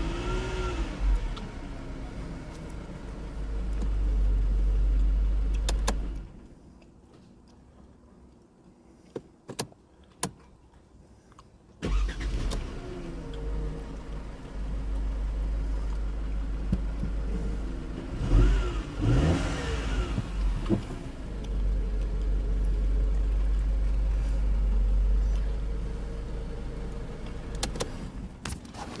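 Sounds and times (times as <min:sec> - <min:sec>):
car engine idling and revving: 0:00.0 - 0:06.9, 0:11.8 - 0:29.0
sharp clicks: 0:27.5 - 0:28.0.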